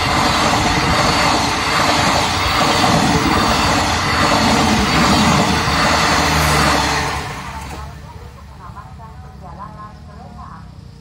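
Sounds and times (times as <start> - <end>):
train wheels rumbling on rails: 0.0 - 9.0.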